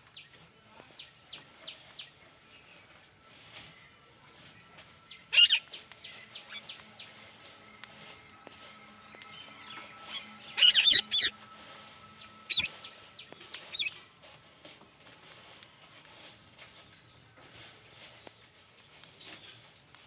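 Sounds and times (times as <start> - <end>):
soft chirping: 1.0 - 14.3
parrot squawking: 5.3 - 5.8, 10.1 - 11.4, 12.5 - 12.7.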